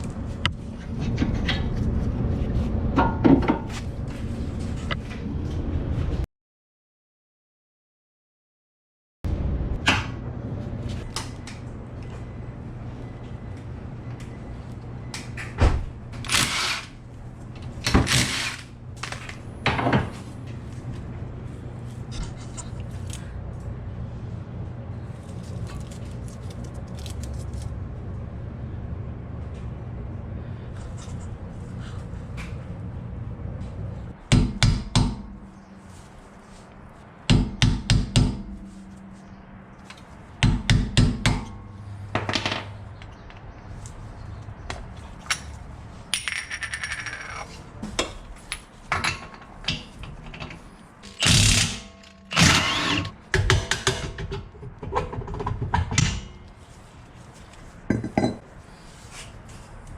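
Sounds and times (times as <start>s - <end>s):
steady low hum: 0.0s - 6.2s, 9.3s - 46.2s
impact wrench bursts: 16.2s - 17.0s, 51.1s - 53.0s
metal tools clinking: 46.2s - 47.6s.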